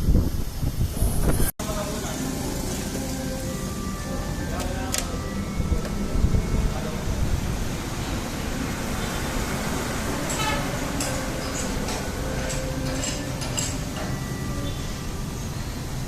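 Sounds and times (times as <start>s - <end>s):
low mechanical rumble: 0.0s - 16.0s.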